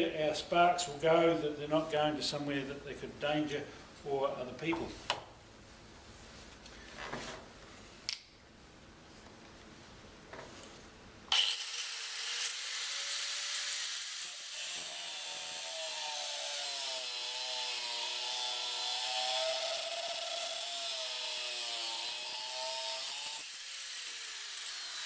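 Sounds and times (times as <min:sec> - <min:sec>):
angle grinder cutting steel: 0:11.3 - 0:25.0.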